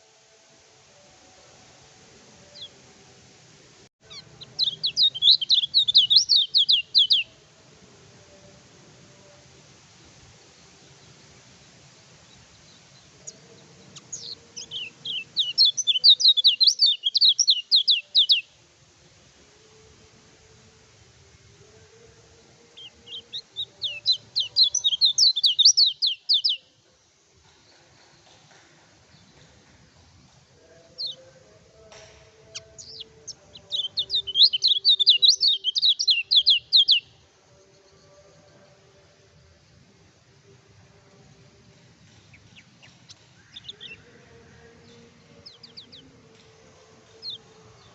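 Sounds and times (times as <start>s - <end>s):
bird singing downward chirps: 4.1s - 7.3s, 12.3s - 18.5s, 22.8s - 26.7s, 32.5s - 37.1s, 42.3s - 46.2s.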